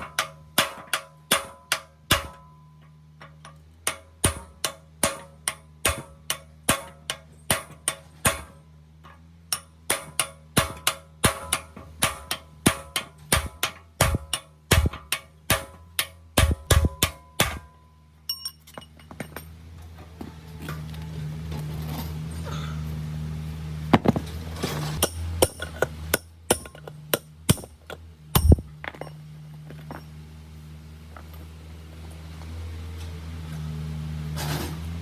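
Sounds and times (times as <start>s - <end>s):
steady low hum: 0.0s - 35.0s
sharp metallic taps: 25.0s - 29.2s.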